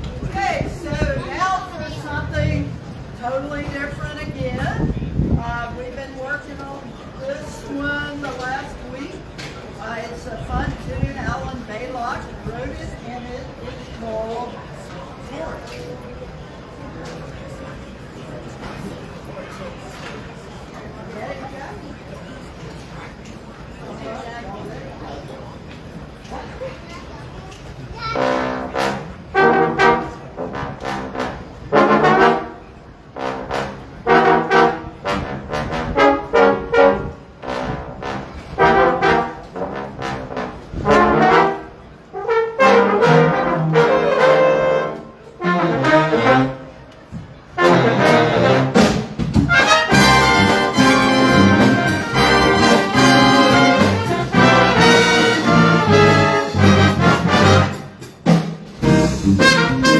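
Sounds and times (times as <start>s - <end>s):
jazz big band playing: 0.6s - 4.9s, 28.0s - 46.9s, 47.5s - 59.9s.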